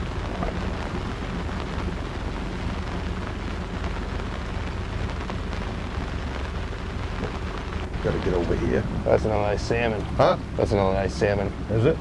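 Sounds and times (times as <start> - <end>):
heavy rain on boat and lake: 0.0 - 12.0.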